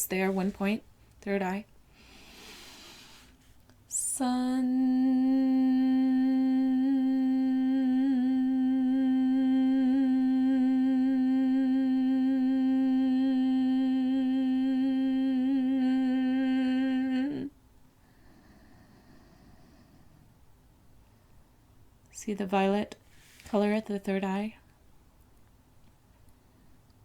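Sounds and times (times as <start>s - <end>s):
person chanting long hum: 3.9s - 17.6s.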